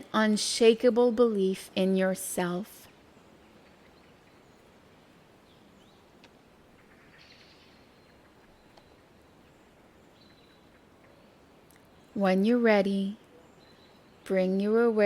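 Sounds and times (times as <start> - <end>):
soft forest hiss: 0.0 - 15.0
small bird chirps: 6.8 - 12.2.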